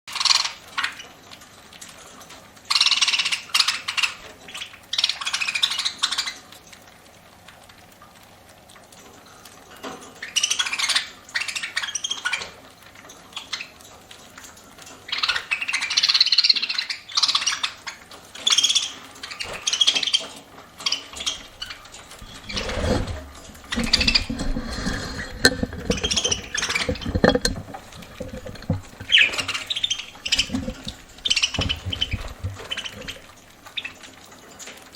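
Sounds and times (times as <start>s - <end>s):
birds cracking seed: 21.0s - 34.1s
low thumps and rustling: 21.2s - 33.8s
budgerigars chirping: 31.2s - 33.2s.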